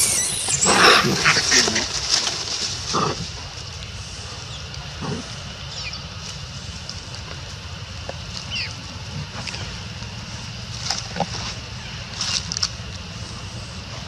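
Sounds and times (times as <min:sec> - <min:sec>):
high-pitched falling chirps: 0:00.0 - 0:01.6
low hum: 0:00.0 - 0:14.0.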